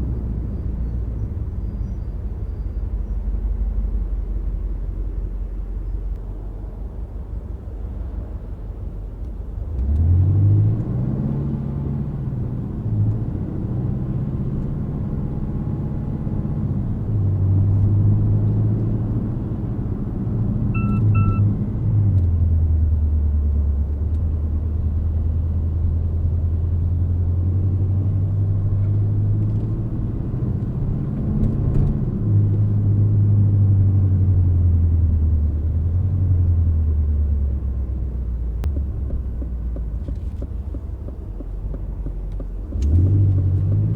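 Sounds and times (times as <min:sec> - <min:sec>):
car engine accelerating: 0:09.7 - 0:43.9
short electronic beeps: 0:20.8 - 0:21.5.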